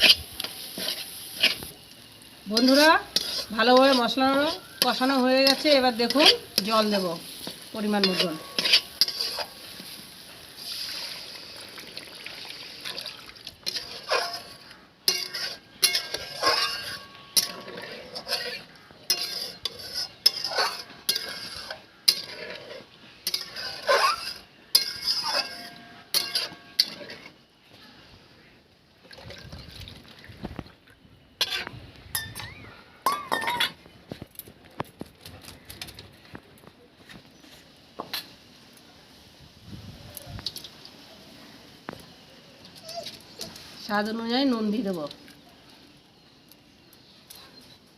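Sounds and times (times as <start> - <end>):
metal spoon scraping cooking pan: 0.0 - 1.8, 2.5 - 10.0, 13.6 - 27.4, 31.4 - 33.8
sizzle: 0.0 - 27.4, 37.6 - 47.3.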